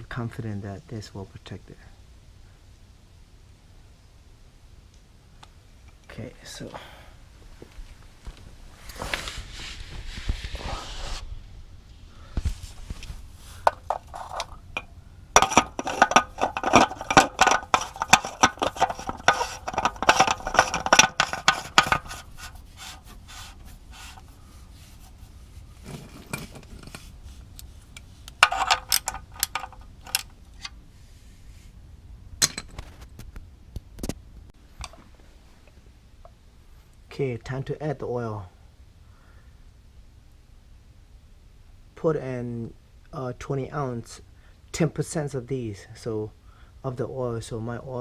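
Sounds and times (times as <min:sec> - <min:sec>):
hand tools clinking and rattling: 0:13.6 - 0:23.1, 0:25.8 - 0:27.1, 0:28.0 - 0:30.8.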